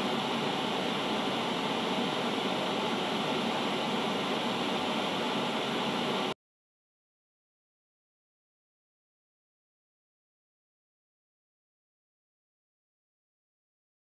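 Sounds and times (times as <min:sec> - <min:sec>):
broadcast static hiss: 0:00.0 - 0:06.4.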